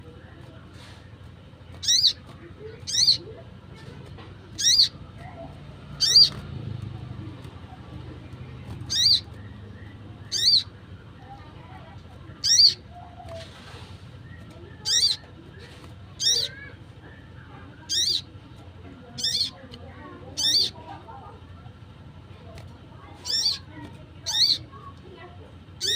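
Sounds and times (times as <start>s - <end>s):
shrill wavering bird call: 4.6s - 5.0s, 6.0s - 6.4s, 8.9s - 9.3s, 10.2s - 10.8s, 12.4s - 12.8s, 14.8s - 15.3s, 17.9s - 18.3s, 19.2s - 19.6s, 20.4s - 20.8s, 23.2s - 24.6s.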